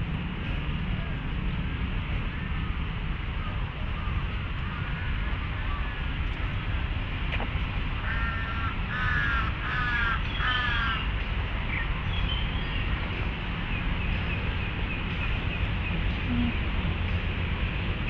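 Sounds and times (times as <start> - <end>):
steady low rumble: 0.0 - 18.0
crow cawing: 8.0 - 11.0.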